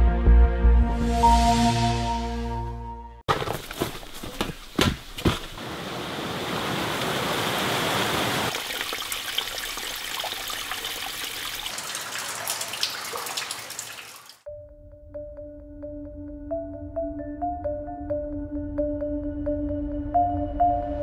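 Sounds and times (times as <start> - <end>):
rushing splashing water: 5.5 - 14.5.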